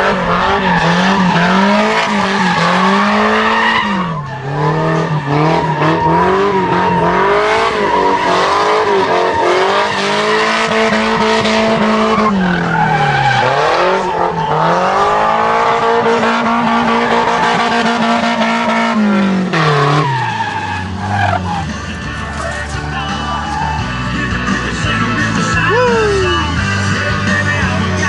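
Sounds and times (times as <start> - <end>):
car engine revving hard: 0.0 - 21.9
tyres squealing: 0.3 - 18.8.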